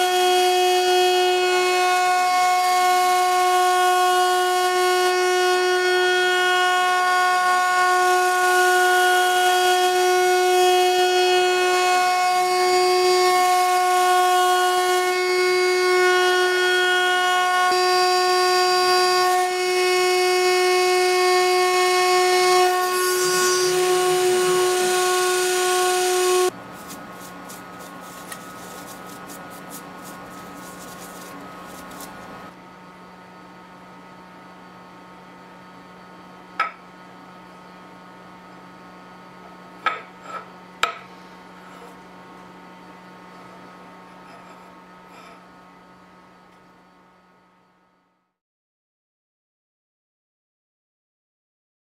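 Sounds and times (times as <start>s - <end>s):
spindle motor high whine: 0.0s - 47.8s.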